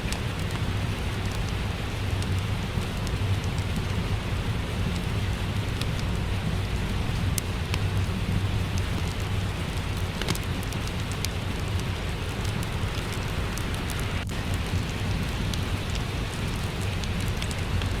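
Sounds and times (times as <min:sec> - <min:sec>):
steady rain: 0:00.0 - 0:18.0
wood fire crackling: 0:00.0 - 0:18.0
sharp fire snap: 0:04.9 - 0:18.0.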